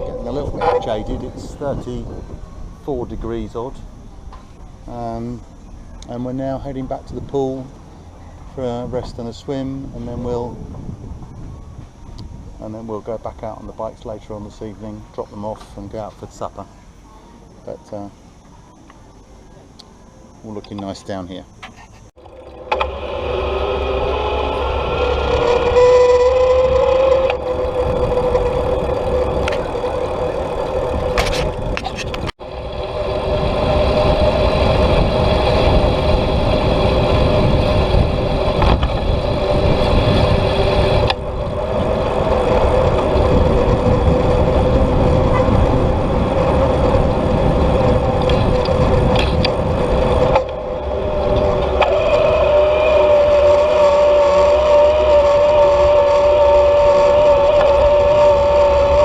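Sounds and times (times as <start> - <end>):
bicycle tyre noise: 0.0 - 5.4, 21.8 - 59.0
steady drone: 0.0 - 15.5, 21.4 - 59.0
wind rushing over microphone: 0.0 - 16.0, 22.7 - 59.0.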